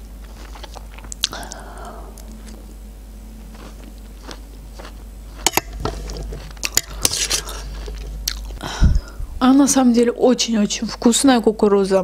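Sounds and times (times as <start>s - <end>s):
close chewing: 0.2s - 2.6s, 3.4s - 8.6s.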